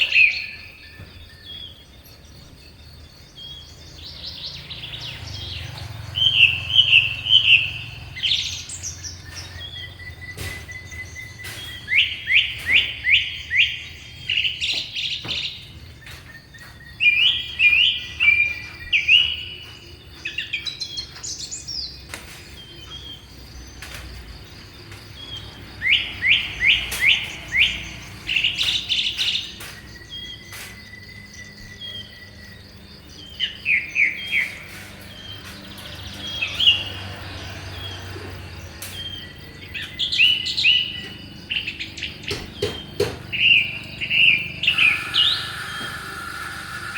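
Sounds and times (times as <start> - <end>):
songbirds chirping: 0.0 - 46.9
long thin bird whistles: 44.6 - 46.9.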